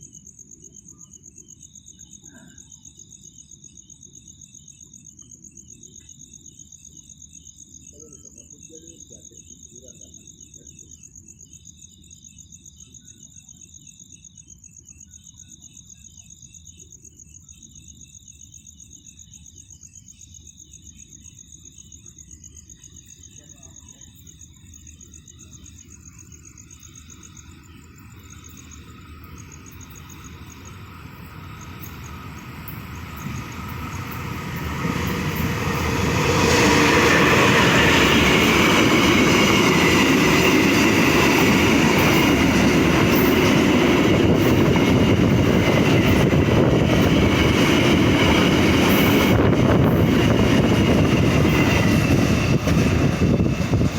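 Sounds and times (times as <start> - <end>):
crickets chirping: 0.0 - 53.9
freight train passing: 25.5 - 53.9.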